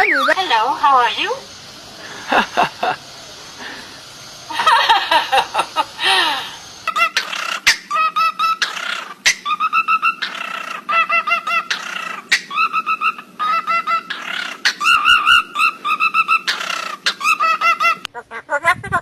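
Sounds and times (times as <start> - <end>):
bird calling in repeated notes: 6.7 - 18.5.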